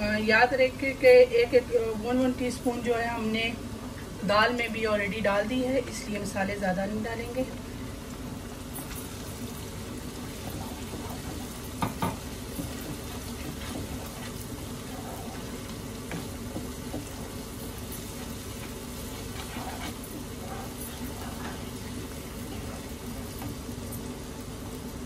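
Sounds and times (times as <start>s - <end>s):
steady low hum: 0.0s - 25.0s
food sizzling in a frying pan: 7.1s - 25.0s
spatula stirring: 8.8s - 24.0s.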